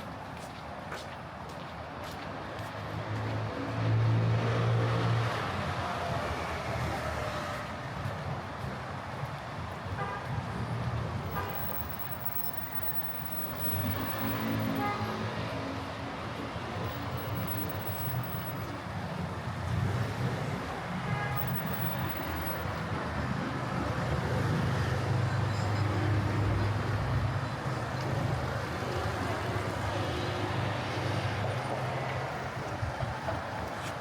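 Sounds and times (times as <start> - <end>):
passing vehicles: 2.4 - 34.0.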